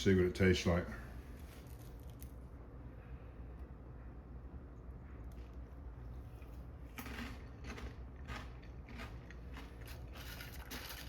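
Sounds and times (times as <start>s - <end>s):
person chewing crunchy food: 6.2s - 11.0s.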